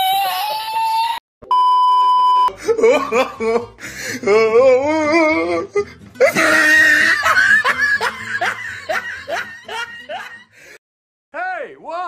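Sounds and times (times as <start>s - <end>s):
comic laughter sound effect: 2.5s - 3.8s, 6.2s - 10.5s
music: 2.5s - 10.8s.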